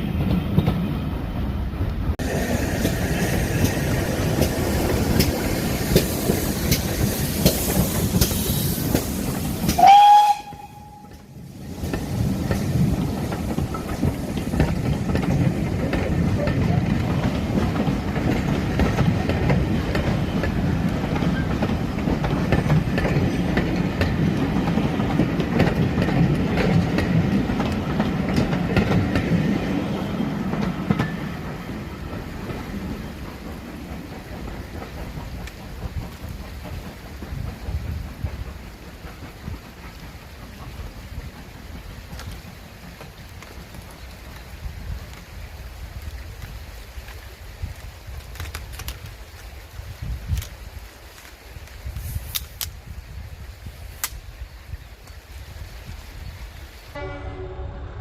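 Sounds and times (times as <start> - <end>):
train wheels clicking over rail joints: 0.0 - 53.2
train rumbling: 0.0 - 58.0
train whistle: 9.7 - 11.4, 57.0 - 58.0.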